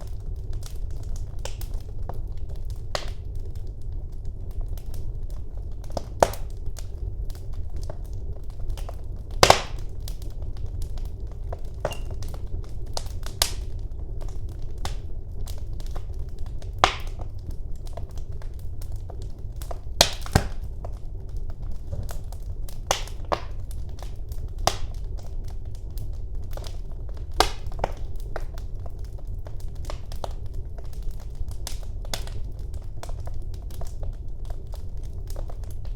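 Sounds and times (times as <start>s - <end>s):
fire crackling and popping: 0.0s - 35.9s
low rumble of flames: 0.0s - 35.9s.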